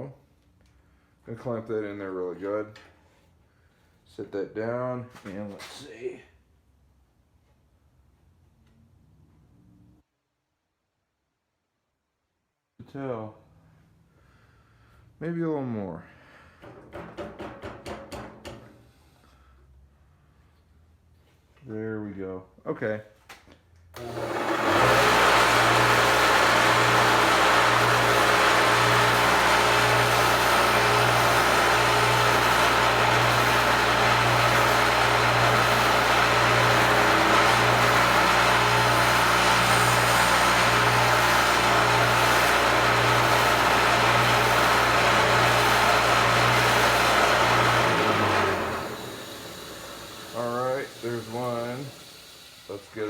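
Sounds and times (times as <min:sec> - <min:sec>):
motor hum: 0:24.0 - 0:52.6
grinding wheel on blade: 0:24.0 - 0:53.0.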